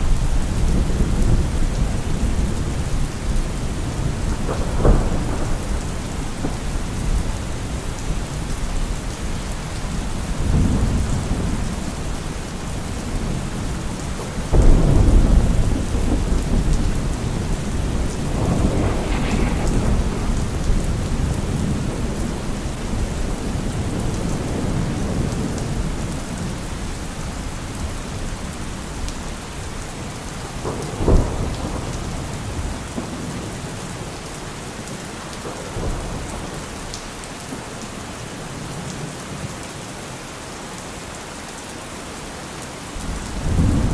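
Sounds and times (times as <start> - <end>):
rolling thunder: 0.0 - 27.5, 28.2 - 34.1, 43.0 - 43.9
heavy rain: 0.0 - 43.9
sharp thunder crack: 14.5 - 24.8.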